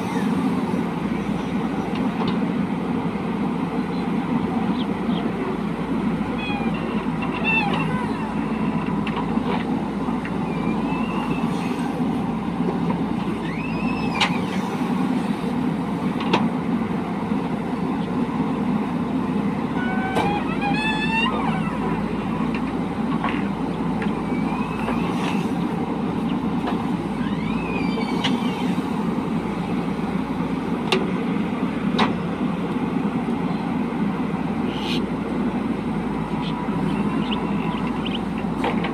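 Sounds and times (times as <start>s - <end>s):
diesel engine running: 0.0s - 38.9s
high sliding squeaks: 6.3s - 8.8s, 10.3s - 12.2s, 13.3s - 15.0s, 19.7s - 22.4s, 24.1s - 25.6s, 27.1s - 29.0s.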